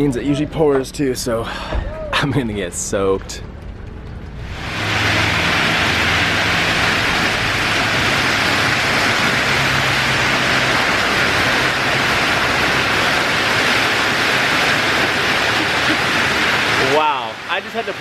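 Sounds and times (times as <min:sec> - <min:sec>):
heavy rain pouring: 0:04.4 - 0:18.0.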